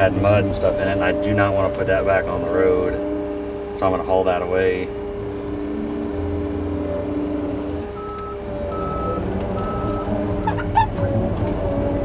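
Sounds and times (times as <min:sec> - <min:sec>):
diesel heavy equipment running: 0:00.0 - 0:12.0
reverse alarm beeping: 0:08.0 - 0:10.1.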